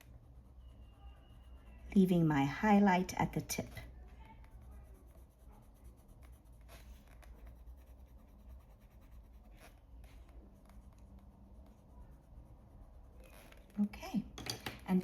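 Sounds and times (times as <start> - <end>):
pencil rubbing on paper: 0.0 - 13.8.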